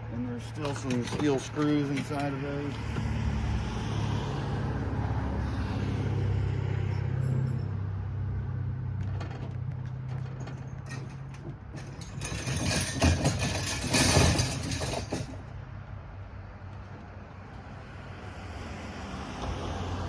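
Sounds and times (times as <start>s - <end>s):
clicks and rattles: 0.4s - 2.9s, 9.0s - 15.5s.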